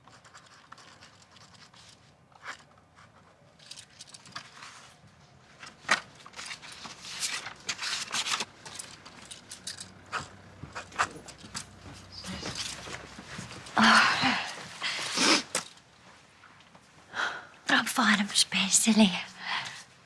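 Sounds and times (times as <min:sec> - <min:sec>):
handling clicks scrapes and rustles: 0:00.0 - 0:15.8.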